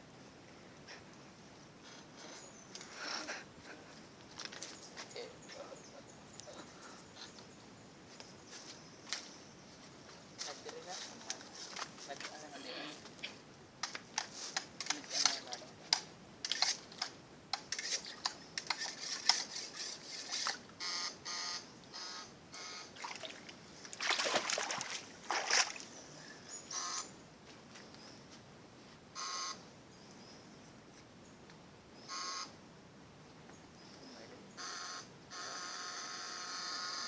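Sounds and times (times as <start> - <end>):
water splashing and trickling: 23.0 - 26.0
short pitched calls: 26.5 - 27.2.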